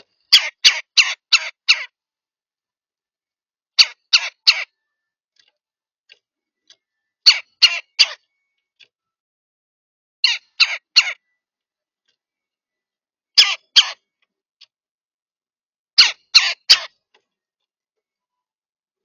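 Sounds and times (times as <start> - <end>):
bird giving harsh calls: 0.3 - 1.9, 3.8 - 4.8, 7.2 - 8.2, 10.2 - 11.3, 13.4 - 14.0, 16.0 - 16.9.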